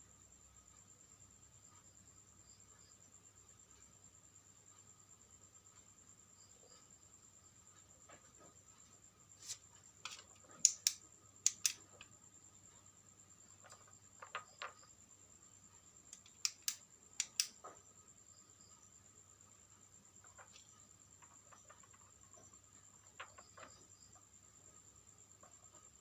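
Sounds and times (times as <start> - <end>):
faint high-pitched whine: 0.0 - 26.0
clicks of small parts and tools: 10.0 - 12.1, 16.1 - 17.8.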